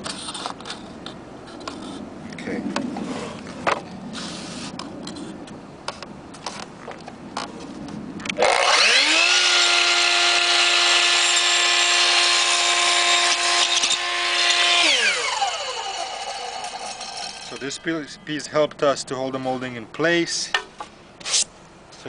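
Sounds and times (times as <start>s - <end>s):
electric miter saw running: 8.4s - 17.8s.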